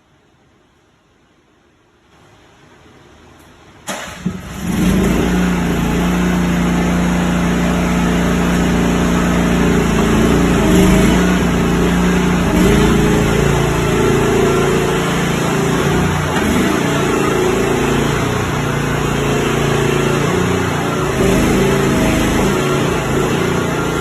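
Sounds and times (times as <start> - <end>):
excavator engine starting and running: 3.9 - 24.0.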